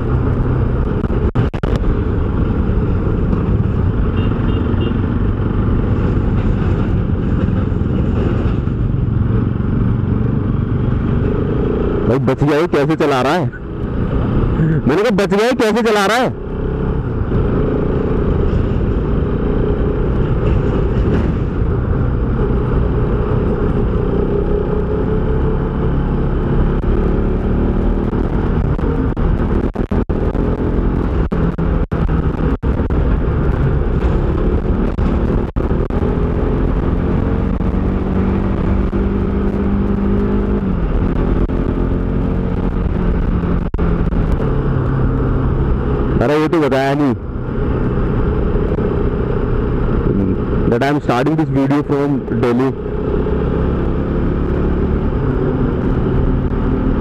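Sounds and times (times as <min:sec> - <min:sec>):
motorcycle engine cruising: 0:00.0 - 0:57.0
wind rumble on microphone: 0:16.8 - 0:46.2.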